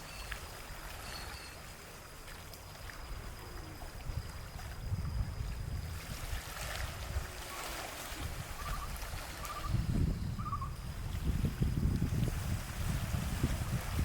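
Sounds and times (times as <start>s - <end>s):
wind buffeting microphone: 3.0s - 14.0s.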